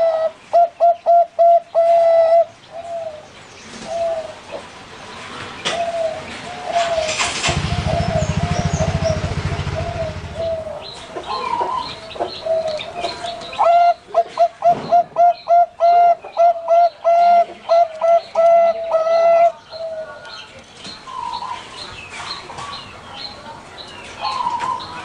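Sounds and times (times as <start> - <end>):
doves cooing: 0.0 - 4.7, 5.6 - 20.5
low buzz: 7.5 - 10.8.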